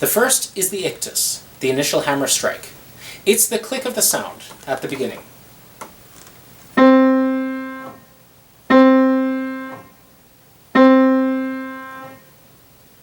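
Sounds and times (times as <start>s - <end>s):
piano note struck: 6.8s - 8.0s, 8.7s - 10.0s, 10.8s - 12.2s.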